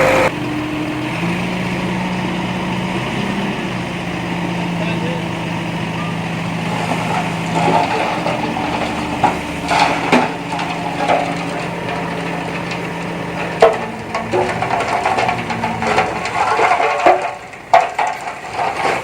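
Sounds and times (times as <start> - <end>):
bulldozer engine running: 0.0 - 19.0
earth and rock being pushed: 6.6 - 19.0
sharp cracks and clunks: 6.7 - 19.0.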